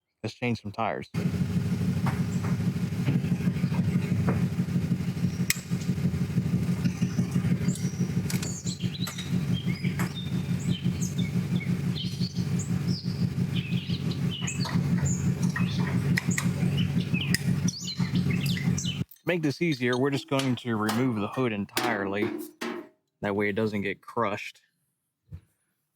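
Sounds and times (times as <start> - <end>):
low motor hum: 1.2 - 19.0
small birds chirping: 2.2 - 21.5.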